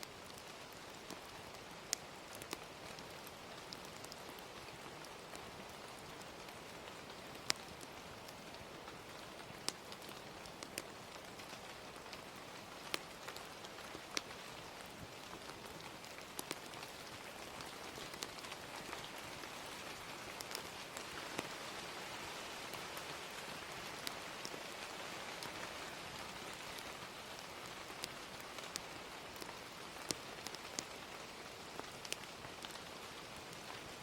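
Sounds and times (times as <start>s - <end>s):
gentle rain hiss: 0.0s - 34.0s
wood fire crackling pops: 0.3s - 6.3s, 7.0s - 21.6s, 28.0s - 30.9s, 31.8s - 32.8s.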